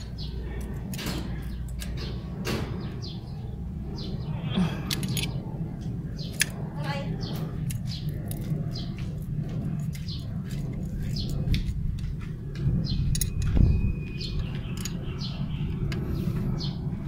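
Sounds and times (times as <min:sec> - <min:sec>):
low rumble: 0:00.0 - 0:17.0
small birds chirping: 0:00.0 - 0:17.0
sharp clicks: 0:04.8 - 0:06.6.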